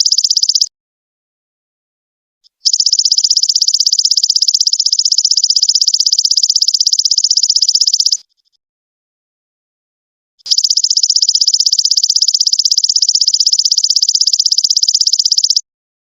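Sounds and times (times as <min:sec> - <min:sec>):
short insect chirp: 0:00.0 - 0:00.7, 0:02.6 - 0:08.6, 0:10.4 - 0:15.6.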